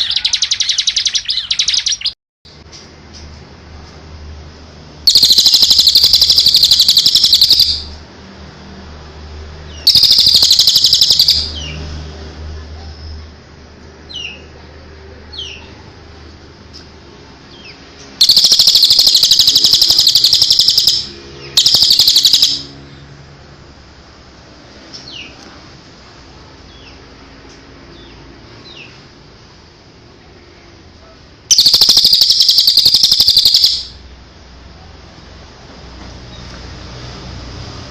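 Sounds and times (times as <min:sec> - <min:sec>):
songbird trilling: 0:05.1 - 0:08.0, 0:09.8 - 0:11.8, 0:18.2 - 0:22.8, 0:31.5 - 0:34.0.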